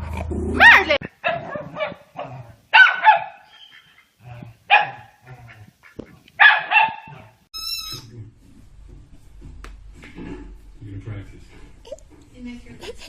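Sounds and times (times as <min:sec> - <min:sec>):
dog barking high-pitched: 0:00.6 - 0:03.5, 0:04.7 - 0:05.1, 0:06.4 - 0:07.3.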